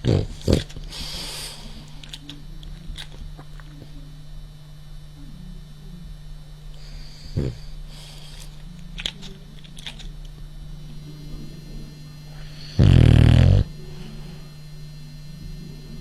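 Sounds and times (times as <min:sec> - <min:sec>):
dog snoring: 0:00.0 - 0:01.8, 0:06.8 - 0:08.1, 0:12.6 - 0:13.7.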